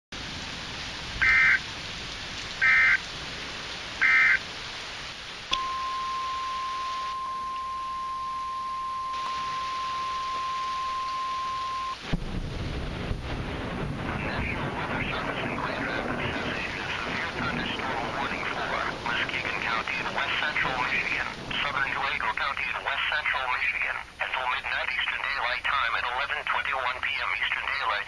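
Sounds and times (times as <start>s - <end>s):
radio hiss: 4.0s - 4.4s, 8.8s - 12.2s, 14.0s - 28.0s
steady alarm tone: 5.5s - 12.0s
warbling data tones: 5.5s - 12.0s.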